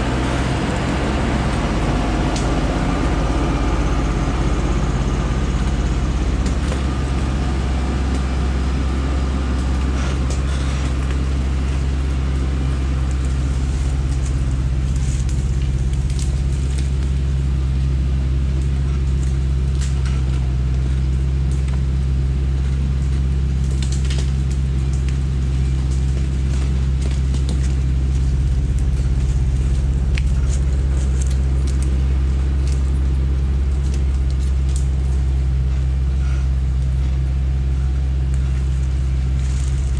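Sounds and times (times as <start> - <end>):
truck engine droning: 0.0 - 39.9
sharp clicks and cracks: 23.0 - 35.4, 38.3 - 39.9.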